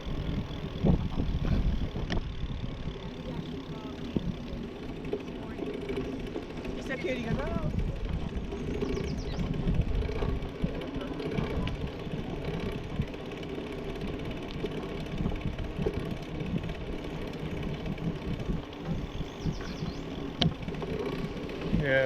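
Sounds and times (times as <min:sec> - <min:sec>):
wind on microphone: 0:00.0 - 0:04.8, 0:07.2 - 0:13.3, 0:15.1 - 0:21.8
bicycle rolling and rattling: 0:00.0 - 0:22.0.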